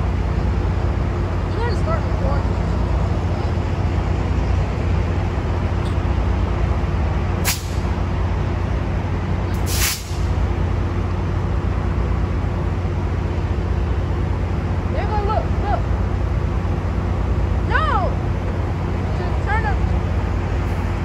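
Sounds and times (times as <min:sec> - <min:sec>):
train rumbling: 0:00.0 - 0:21.0
sharp hisses of air: 0:07.4 - 0:07.8, 0:09.5 - 0:10.3.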